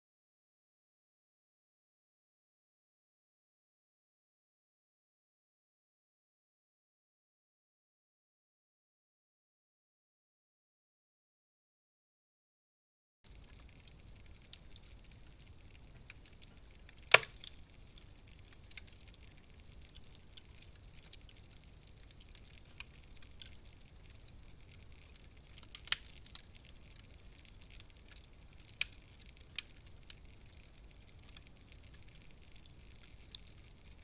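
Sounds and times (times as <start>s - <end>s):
wood fire crackling: 13.2s - 34.0s
faint steady hiss: 13.3s - 34.0s.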